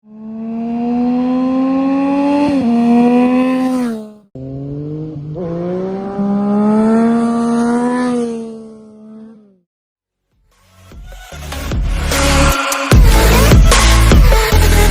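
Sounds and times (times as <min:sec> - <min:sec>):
motorcycle engine accelerating: 0:00.0 - 0:09.7.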